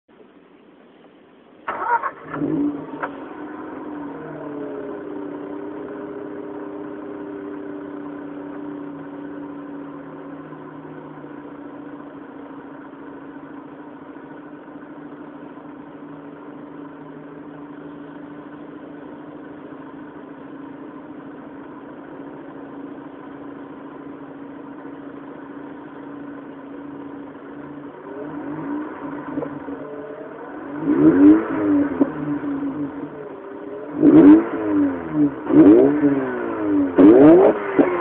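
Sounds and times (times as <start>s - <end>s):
rotary engine idling: 1.7s - 37.0s.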